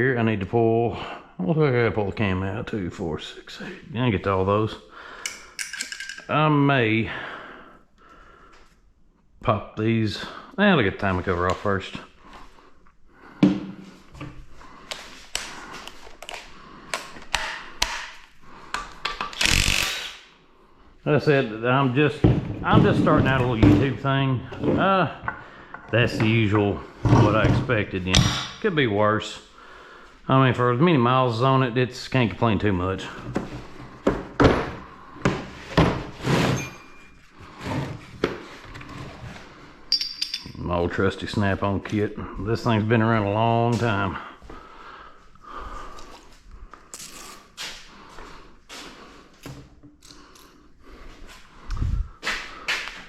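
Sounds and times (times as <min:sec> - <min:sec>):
hand tools clicking on metal: 0:05.2 - 0:06.3
tools being handled and set down: 0:05.2 - 0:06.3, 0:33.4 - 0:37.2, 0:39.9 - 0:40.6.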